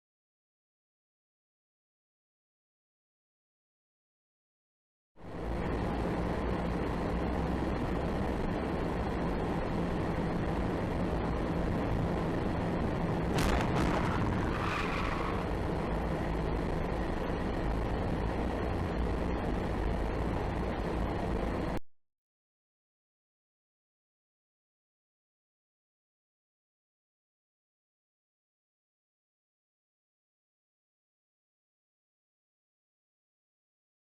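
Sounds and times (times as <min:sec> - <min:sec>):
vehicle road and engine noise: 0:05.2 - 0:21.8
loud bang with ringing tail: 0:13.4 - 0:14.6.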